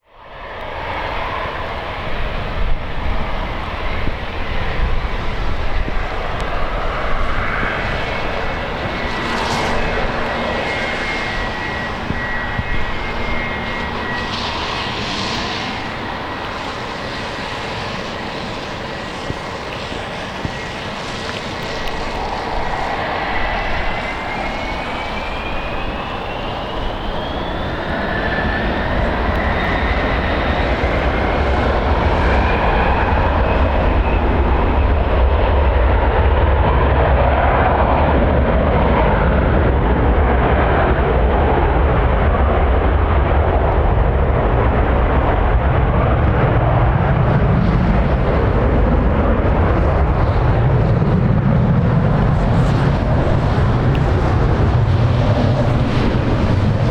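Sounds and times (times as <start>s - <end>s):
jet engines spooling up and roaring: 0.0s - 56.9s.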